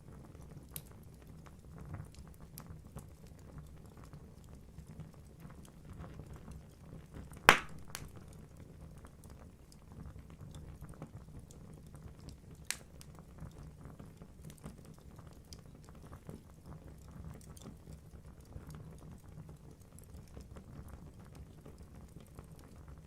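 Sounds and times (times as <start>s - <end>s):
logs crackling: 7.5s - 8.4s
loud pop from fire: 7.5s - 8.4s.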